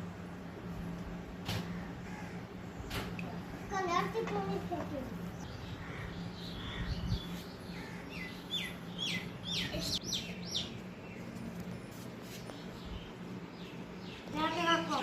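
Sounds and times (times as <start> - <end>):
small bird chirping: 5.3 - 11.3.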